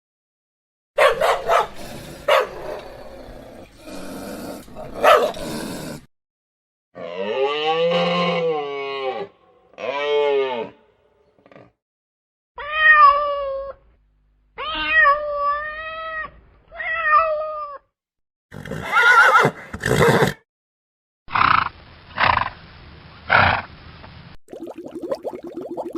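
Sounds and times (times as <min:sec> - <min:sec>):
cat meowing: 0:12.6 - 0:13.8, 0:14.6 - 0:17.9.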